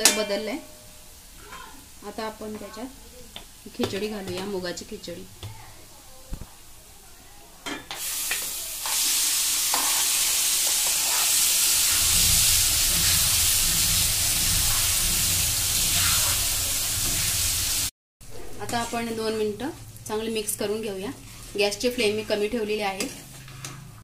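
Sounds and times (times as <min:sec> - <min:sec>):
food sizzling in hot oil: 0:00.0 - 0:05.4, 0:07.9 - 0:17.9, 0:18.6 - 0:24.0
spoon scraping pan: 0:08.3 - 0:12.2, 0:21.2 - 0:24.0.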